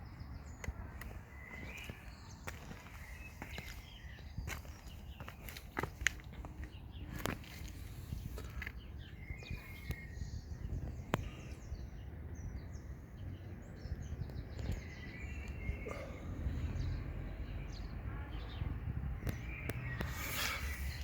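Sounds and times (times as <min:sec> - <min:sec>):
bird chirps: 0:08.3 - 0:21.0.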